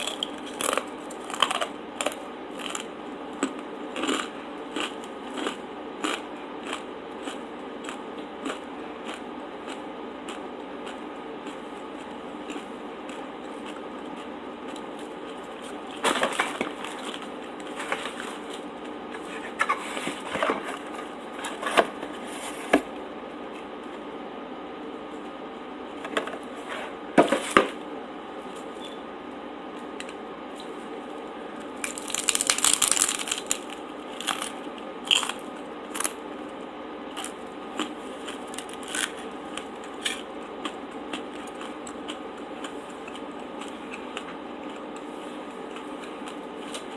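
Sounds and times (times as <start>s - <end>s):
crunchy bites and chewing: 0.0s - 19.6s, 29.8s - 46.9s
faint steady hum: 0.0s - 46.9s.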